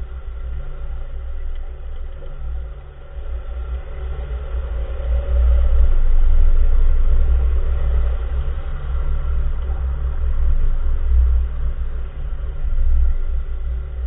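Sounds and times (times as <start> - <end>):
car road and tyre noise: 0.0 - 14.0.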